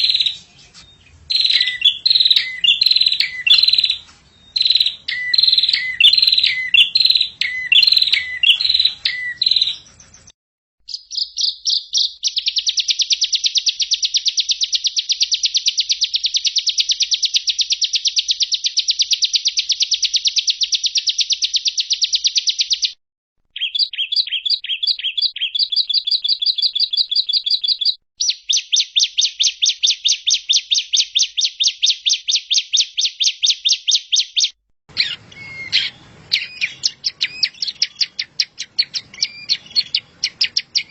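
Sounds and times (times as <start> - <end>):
falling whistled bird phrase: 0.0 - 10.3, 33.2 - 40.9
fast high bird trills: 0.0 - 10.3, 34.9 - 40.9
slower run of bird notes: 0.0 - 10.3.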